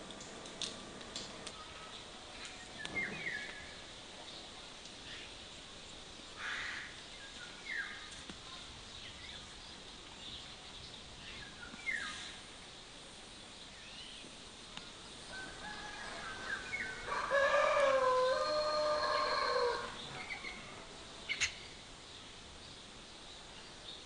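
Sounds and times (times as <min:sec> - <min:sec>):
rooster crowing: 0:15.3 - 0:20.0.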